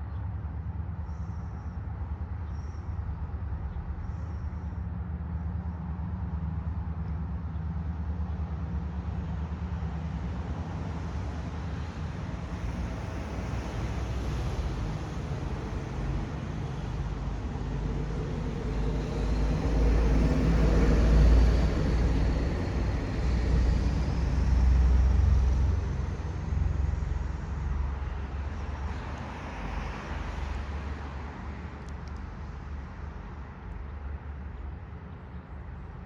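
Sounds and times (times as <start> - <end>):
passenger train rolling past: 17.9 - 26.5.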